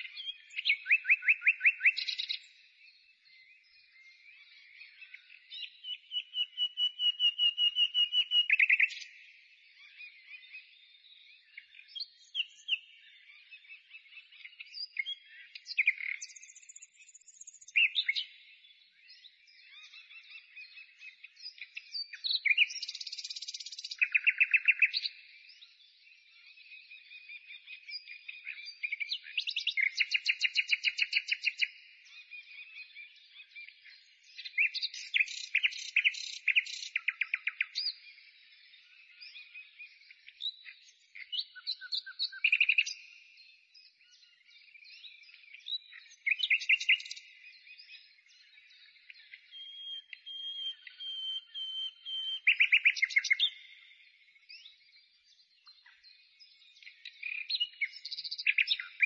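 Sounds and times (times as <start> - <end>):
songbird trilling: 0.0 - 2.4, 49.5 - 53.9.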